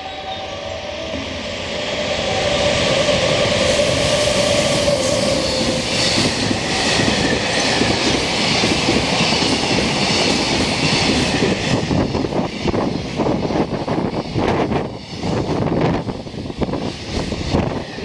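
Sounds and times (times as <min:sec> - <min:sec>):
electric locomotive motor whine: 0:00.0 - 0:09.0.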